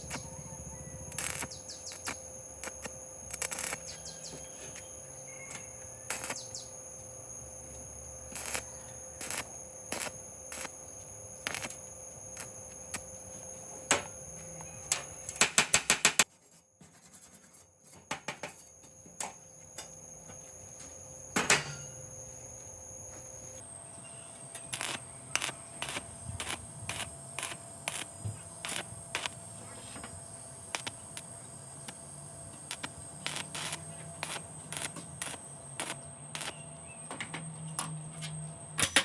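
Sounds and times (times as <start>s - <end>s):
high-pitched whine: 0.0s - 15.4s, 19.8s - 38.9s.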